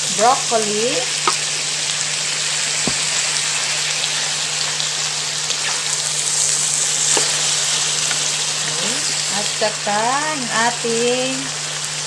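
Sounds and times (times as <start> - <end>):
food sizzling in a wok: 0.0 - 12.0
wooden spoon knocks: 2.9 - 3.1.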